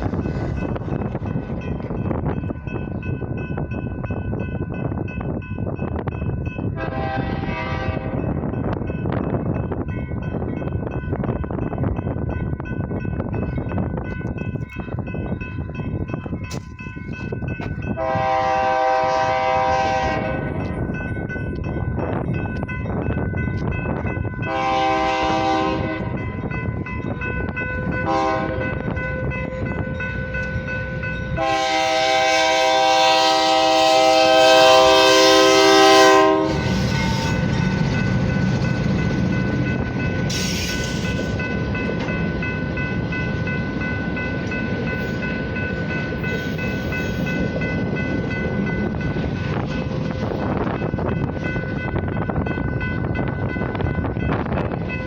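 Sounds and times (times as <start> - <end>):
passing train rumble: 0.0 - 55.0
locomotive horn blasts: 6.8 - 8.2, 18.0 - 20.6, 24.5 - 26.2, 28.0 - 28.9, 31.2 - 37.6.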